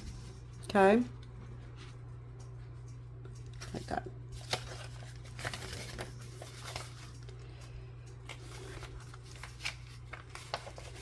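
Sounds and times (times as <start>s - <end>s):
steady low hum: 0.0s - 11.0s
paper envelopes rustling: 3.4s - 11.0s.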